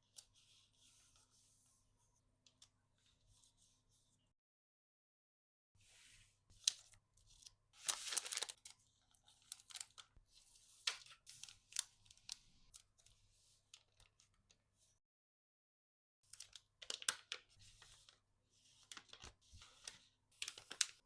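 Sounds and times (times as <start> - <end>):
packaging tearing and crinkling: 7.9 - 8.6
packaging clicks and rustles: 7.9 - 8.8.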